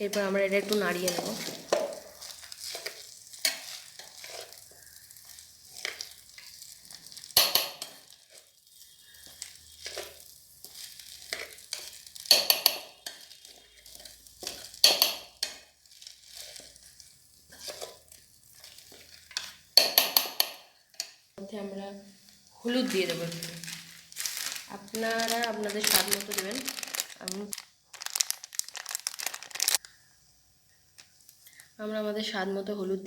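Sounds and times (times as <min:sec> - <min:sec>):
spoon scraping in a pot: 0:00.0 - 0:21.2
faint sizzle of frying: 0:00.0 - 0:33.0.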